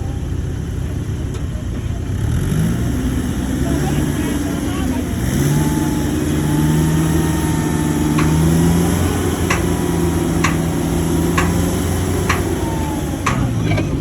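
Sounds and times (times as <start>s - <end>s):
diesel engine running: 0.0s - 14.0s
sharp metallic clinks: 6.5s - 13.9s.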